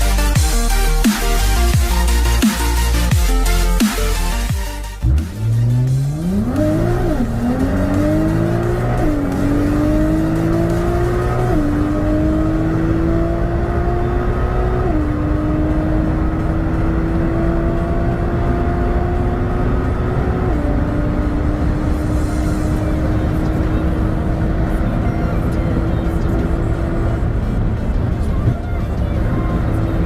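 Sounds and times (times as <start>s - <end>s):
electronic music: 0.0s - 12.6s
car engine accelerating through gears: 5.0s - 30.0s.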